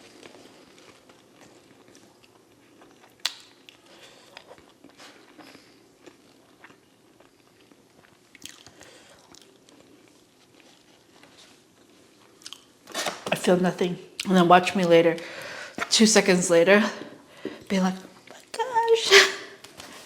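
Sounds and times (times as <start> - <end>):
crunchy chewing: 0.0 - 12.7.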